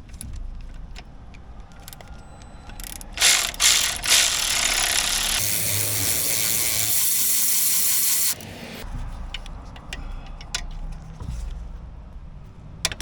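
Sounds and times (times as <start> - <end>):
metallic clicks of tools: 0.0 - 8.6
electric ratchet whining: 2.7 - 8.8.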